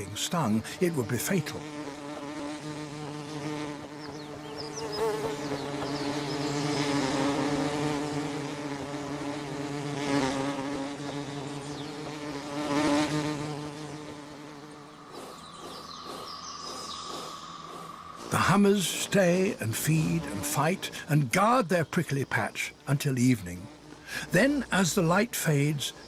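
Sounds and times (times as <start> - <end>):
insect buzzing in flight: 0.0 - 26.0.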